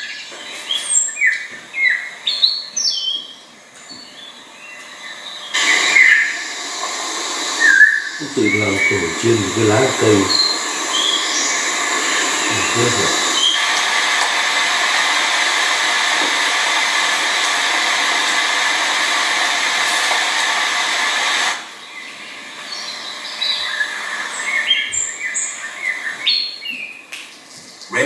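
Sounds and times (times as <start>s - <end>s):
small birds chirping: 0.0s - 6.6s, 7.6s - 13.7s, 21.6s - 28.0s
loud rushing hiss: 5.5s - 24.7s.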